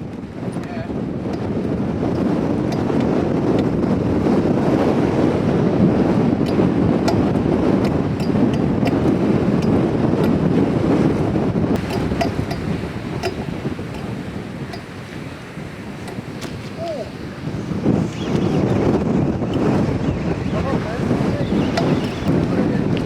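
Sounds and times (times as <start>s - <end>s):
wind buffeting microphone: 0.0s - 23.0s
sea washing over rocks: 11.7s - 23.0s.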